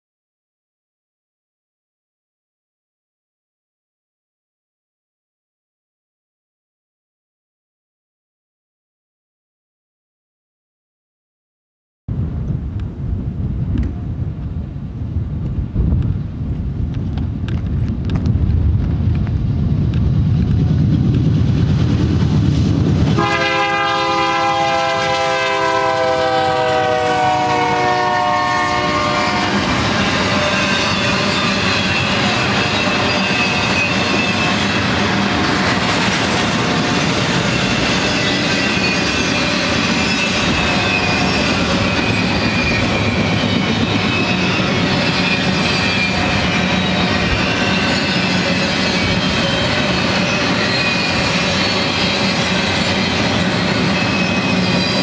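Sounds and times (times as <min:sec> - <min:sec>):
train locomotives rumbling: 0:12.1 - 0:55.0
train cars clickety-clack: 0:15.4 - 0:55.0
multi-note locomotive horn: 0:23.2 - 0:33.6
faint thin wheel squeal: 0:37.5 - 0:55.0.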